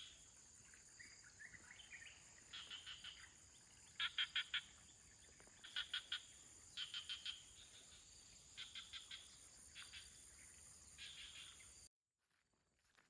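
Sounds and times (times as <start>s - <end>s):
high insect drone: 5.6s - 11.9s.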